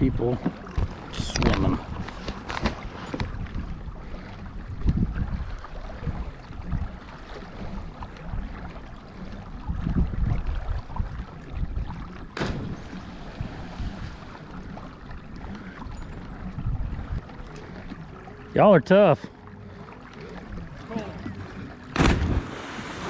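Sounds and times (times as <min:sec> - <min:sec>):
wind rumbling on microphone: 0:00.0 - 0:17.6
water lapping against kayak: 0:00.0 - 0:23.0.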